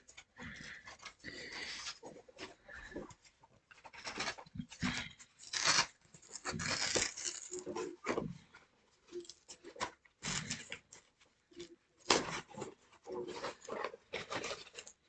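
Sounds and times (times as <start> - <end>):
packing tape ripping: 5.4 - 8.0
cardboard box being torn open: 5.4 - 8.2.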